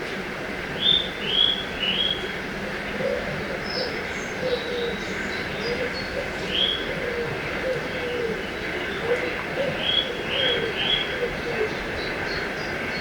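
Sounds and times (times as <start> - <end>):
low wavering cooing: 3.0 - 12.2.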